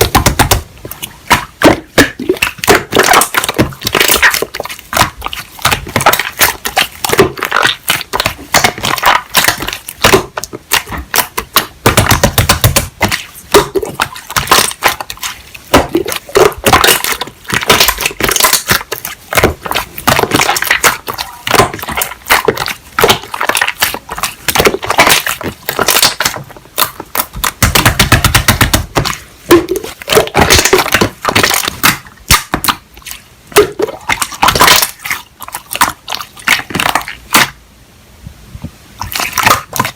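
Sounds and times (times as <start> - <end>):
slime squished by hand: 0.0 - 37.6, 39.0 - 39.9.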